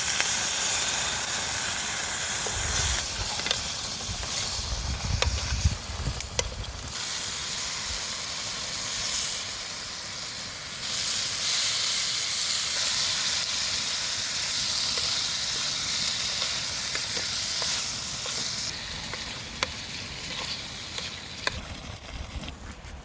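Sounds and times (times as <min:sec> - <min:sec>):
food sizzling in a pan: 0:00.0 - 0:22.5.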